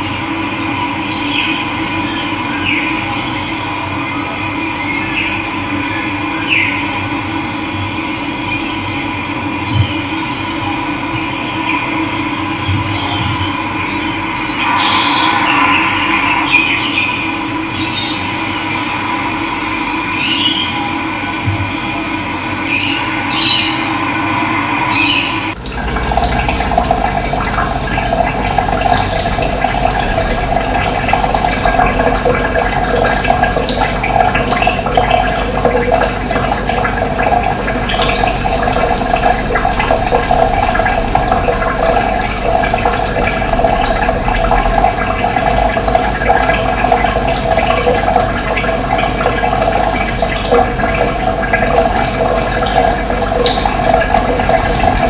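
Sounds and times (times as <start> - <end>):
steady high tones: 14.1 - 20.2, 23.0 - 47.5
water rushing: 14.3 - 20.3, 22.7 - 55.0.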